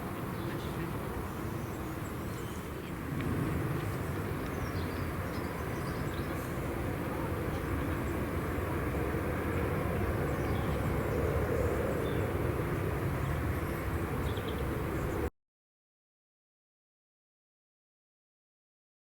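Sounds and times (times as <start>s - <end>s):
distant jet engine rumble: 0.0s - 15.3s.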